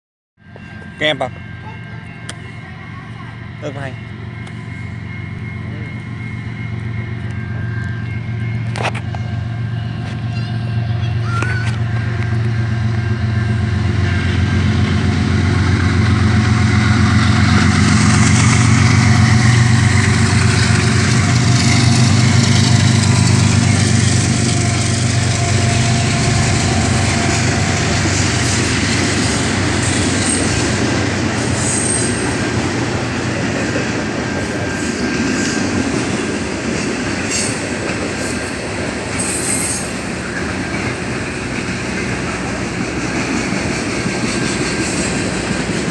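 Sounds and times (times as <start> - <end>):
freight train drone: 0.4 - 45.9
high wheel squeals: 31.4 - 32.4, 38.3 - 40.5.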